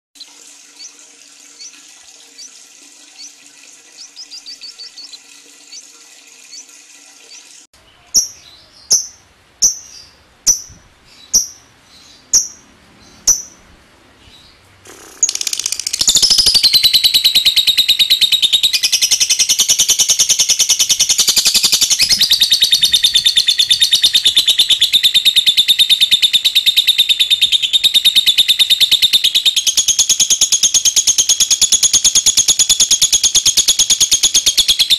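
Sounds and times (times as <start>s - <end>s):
lovebird chirps: 7.3s - 13.6s, 14.3s - 31.6s
lovebird rattling trill: 11.3s - 11.7s, 14.9s - 34.9s
lovebird sharp calls: 13.2s - 13.6s.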